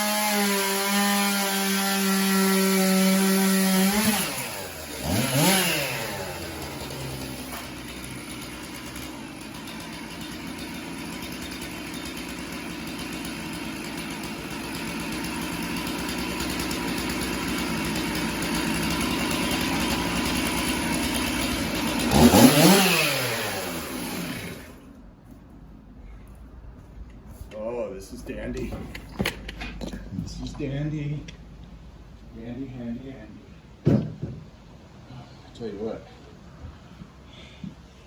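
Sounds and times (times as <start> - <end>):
chainsaw cutting log: 0.0 - 25.0.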